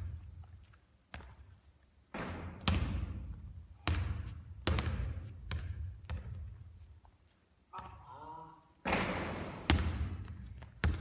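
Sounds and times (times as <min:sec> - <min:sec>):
basketball bouncing on court: 0:02.1 - 0:06.7, 0:08.8 - 0:11.0.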